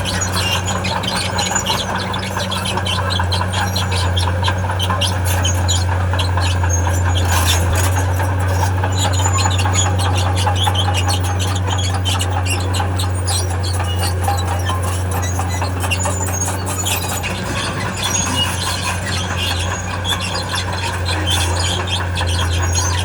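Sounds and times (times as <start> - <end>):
diesel engine humming: 0.0 - 23.0
steel tracks squeaking: 0.0 - 23.0.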